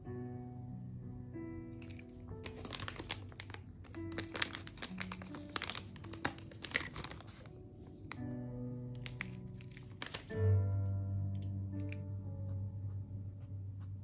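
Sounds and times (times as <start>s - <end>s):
paper crinkling and rustling: 1.8s - 8.2s, 9.0s - 10.4s.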